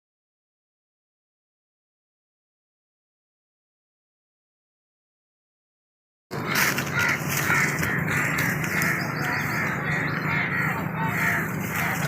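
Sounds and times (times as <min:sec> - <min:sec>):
birds cawing: 0:06.3 - 0:12.0.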